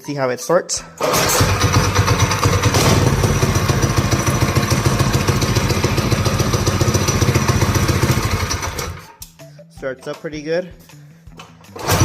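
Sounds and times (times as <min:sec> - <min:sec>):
mini bike engine running: 0:01.0 - 0:09.0, 0:11.8 - 0:12.0.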